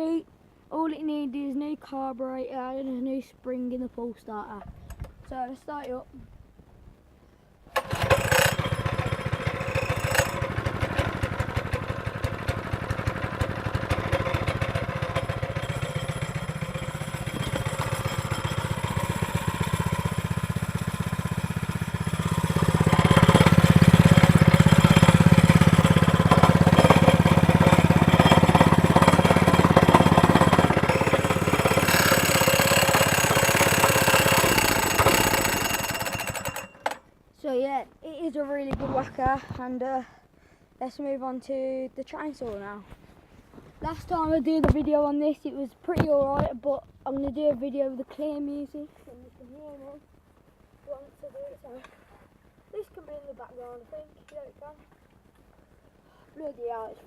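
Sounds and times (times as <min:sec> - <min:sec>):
plate compactor engine running: 0:07.7 - 0:37.0.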